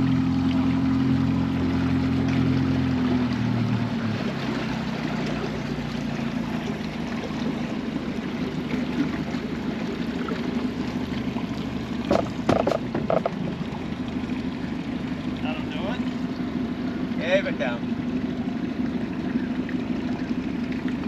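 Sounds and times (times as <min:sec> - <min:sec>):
motorboat engine hum: 0:00.0 - 0:21.0
water wash: 0:00.0 - 0:21.0
short knocks: 0:12.0 - 0:13.6.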